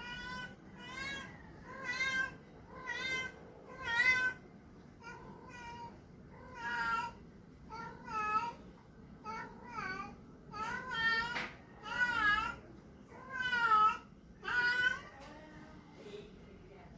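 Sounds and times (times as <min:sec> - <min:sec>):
cat meowing: 0:00.0 - 0:04.4.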